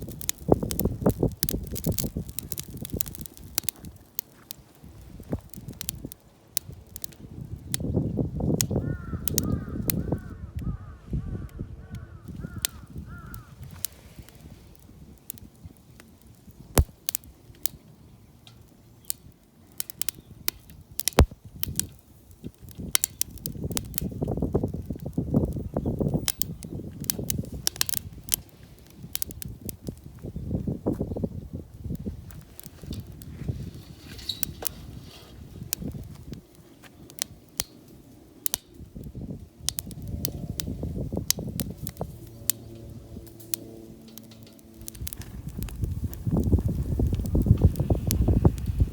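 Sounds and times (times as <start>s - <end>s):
loud cracks: 0.0s - 7.9s, 12.3s - 17.8s, 18.5s - 25.2s, 26.0s - 28.5s
sharp snaps and crackles: 0.0s - 48.9s.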